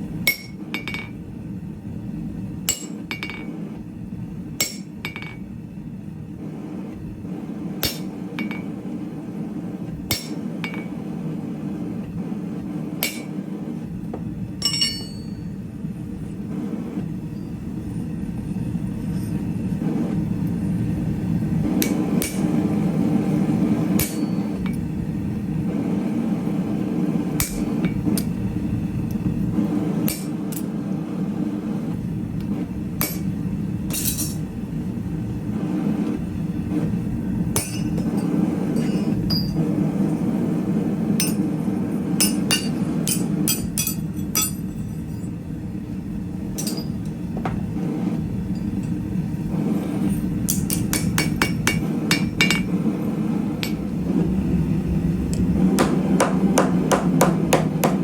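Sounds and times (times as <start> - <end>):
hammer striking steel on anvil: 0.2 - 1.2, 2.7 - 3.6, 4.6 - 5.5, 7.8 - 8.8, 10.1 - 11.0, 13.0 - 13.4, 14.6 - 15.5, 21.7 - 22.6, 23.8 - 24.8, 27.4 - 28.4, 30.1 - 30.7, 33.0 - 34.4, 37.6 - 39.6, 41.2 - 41.6, 42.2 - 45.3, 46.6 - 47.6, 50.4 - 52.8, 53.6 - 53.8, 55.8 - 58.0.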